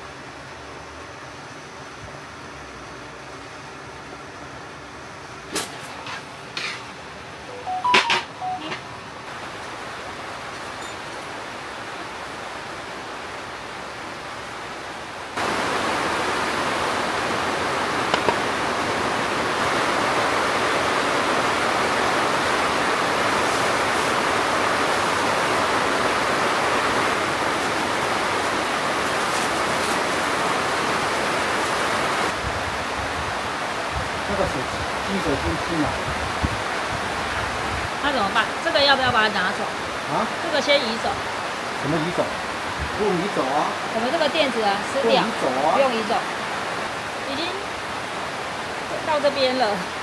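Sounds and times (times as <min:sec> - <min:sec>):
heavy rain falling: 0:02.0 - 0:50.0.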